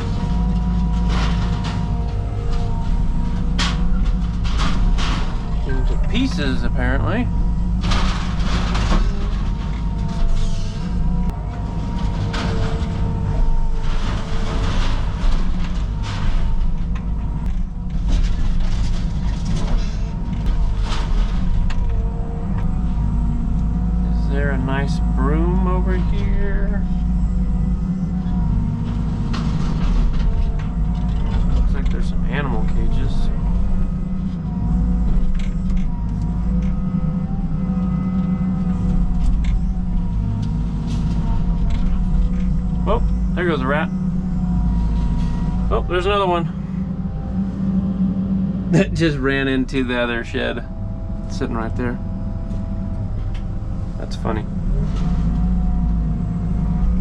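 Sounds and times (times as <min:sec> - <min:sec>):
debris knocking and cracking: 0:00.0 - 0:22.7, 0:26.9 - 0:36.8
diesel engine rumble: 0:00.0 - 0:57.0
hydraulic whine: 0:00.0 - 0:57.0.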